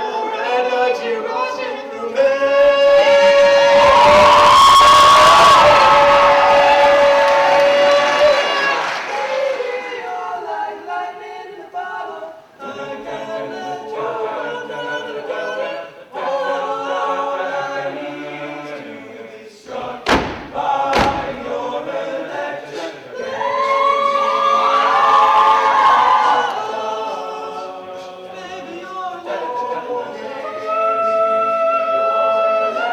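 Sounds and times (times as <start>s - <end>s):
a cappella ensemble singing: 0.0s - 32.9s
sharp thumps: 19.8s - 21.7s.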